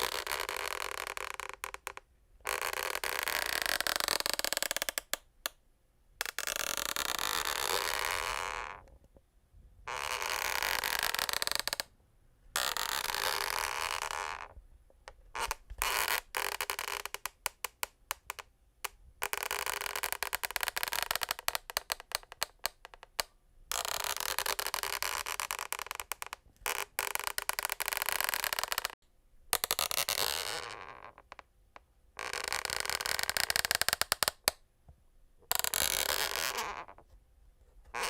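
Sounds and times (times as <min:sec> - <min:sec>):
wooden floorboards creaking: 0:09.9 - 0:11.9.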